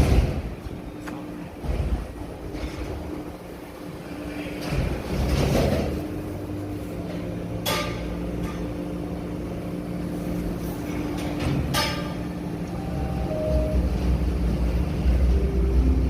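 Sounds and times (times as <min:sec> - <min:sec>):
subway train rumbling: 0:00.0 - 0:16.0
sharp metal clanks: 0:11.2 - 0:12.2.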